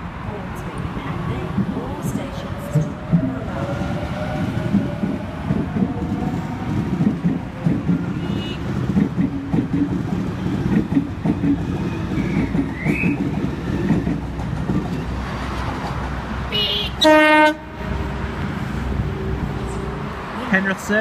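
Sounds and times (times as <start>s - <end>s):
electric train clattering over rails: 0.0s - 20.4s
loud train horn blast: 8.1s - 8.8s, 16.5s - 18.6s.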